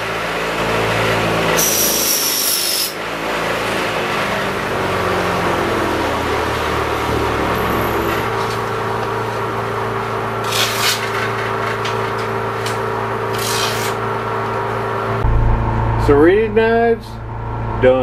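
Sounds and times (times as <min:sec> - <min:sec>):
knife sharpener motor running: 0:00.0 - 0:14.2
blade grinding: 0:01.5 - 0:03.0, 0:10.3 - 0:14.1.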